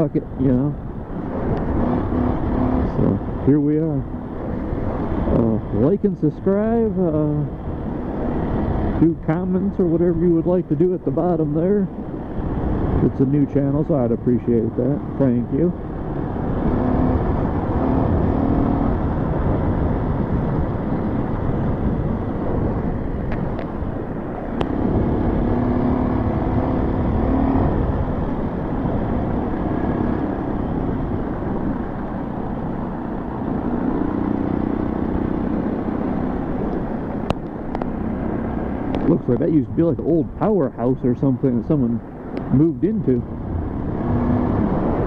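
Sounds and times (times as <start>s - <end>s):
wind rumble on microphone: 0.0s - 45.0s
motorcycle engine running: 14.6s - 45.0s.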